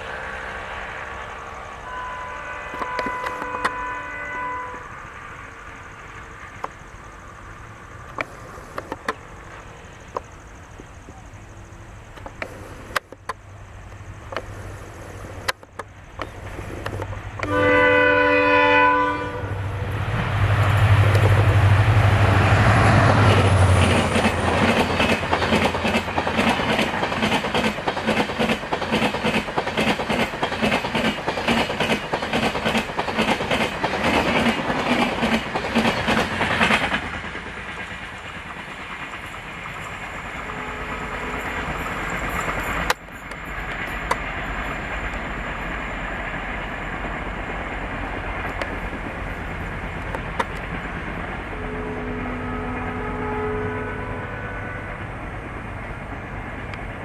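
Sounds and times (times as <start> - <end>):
locomotive horn: 1.8 - 5.0, 17.4 - 19.9, 40.4 - 41.7, 51.4 - 55.2
locomotive engine rumble: 4.8 - 57.0
train wheels clattering on rails: 19.9 - 53.0.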